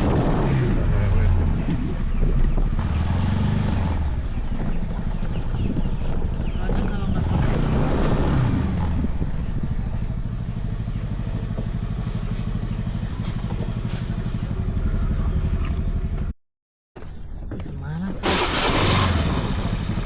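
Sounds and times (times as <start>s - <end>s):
scooter engine running: 8.8s - 16.3s, 18.2s - 20.0s.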